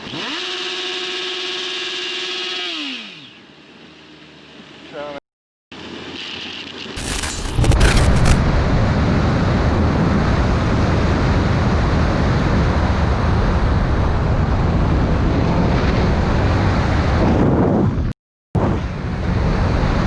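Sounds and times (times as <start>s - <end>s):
sharp clicks: 7.0s - 8.6s.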